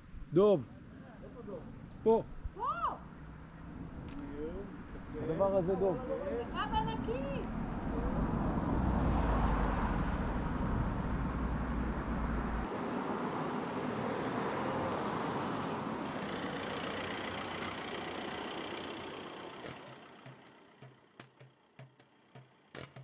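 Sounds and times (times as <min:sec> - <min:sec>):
motorcycle engine: 0:15.9 - 0:23.0.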